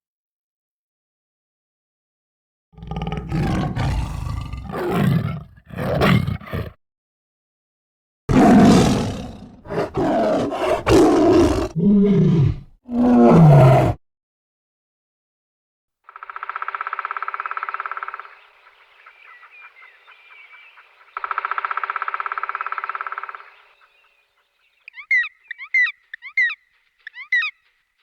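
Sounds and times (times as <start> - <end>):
animal roars and growls: 2.8 - 6.8, 8.3 - 14.0.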